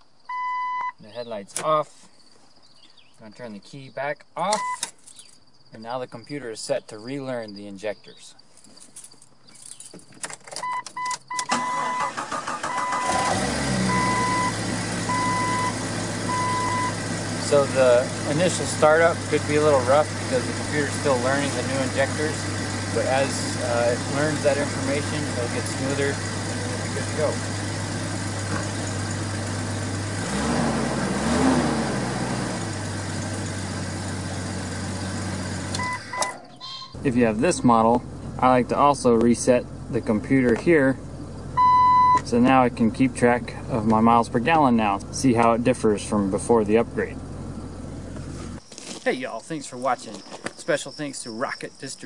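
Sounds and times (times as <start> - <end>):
dashboard warning chime beeping: 0.3 - 1.0, 4.5 - 4.9, 10.6 - 13.3, 13.9 - 17.0, 35.8 - 37.0, 41.6 - 42.3
engine cranking and idling: 10.6 - 48.6.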